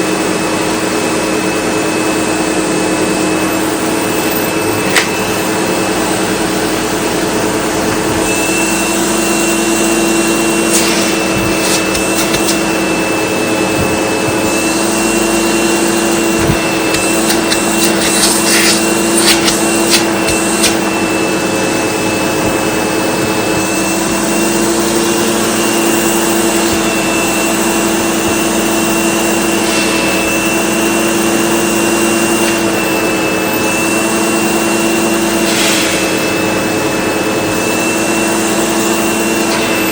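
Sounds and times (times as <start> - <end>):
vacuum cleaner running: 0.0 - 39.9
debris rattling through vacuum: 10.4 - 23.8.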